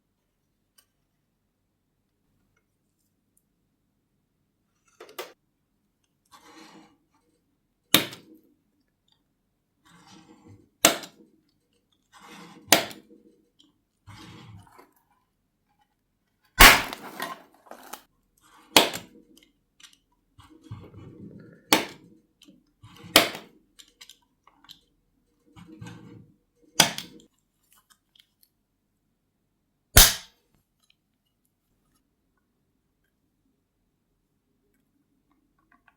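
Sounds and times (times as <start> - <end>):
scuffing and handling noises: 16.8 - 18.1
sharp snapping knocks: 30.0 - 30.3.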